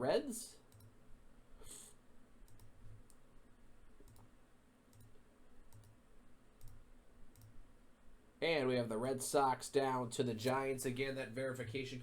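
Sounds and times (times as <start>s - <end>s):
faint computer mouse clicks: 0.7s - 1.0s, 2.5s - 3.2s, 4.0s - 4.3s, 4.9s - 6.0s, 6.6s - 7.6s.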